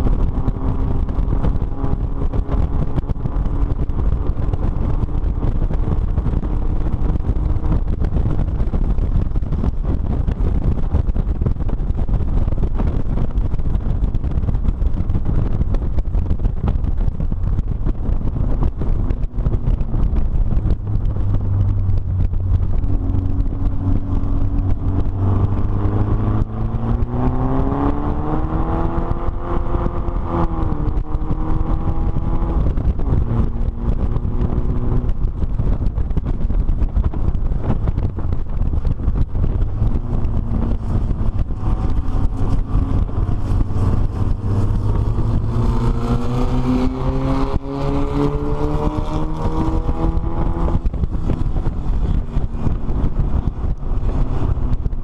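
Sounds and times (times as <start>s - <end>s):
race car engine running: 0.0s - 55.0s
wind buffeting microphone: 0.0s - 55.0s.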